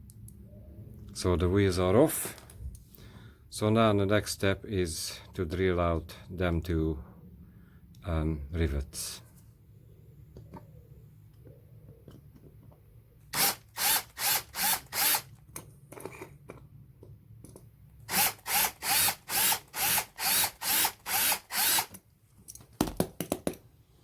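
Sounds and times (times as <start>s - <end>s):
electric drill whining in bursts: 13.3s - 15.3s, 18.1s - 22.0s.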